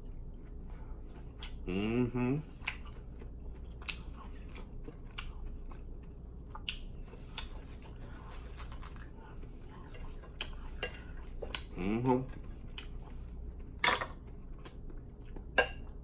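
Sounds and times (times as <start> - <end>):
person chewing: 0.0 - 16.0
mouth clicks and smacks: 6.5 - 7.6.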